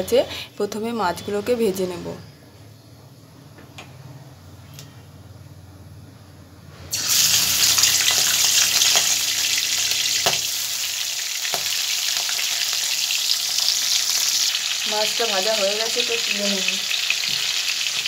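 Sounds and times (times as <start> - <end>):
oil sizzling: 6.9 - 18.0.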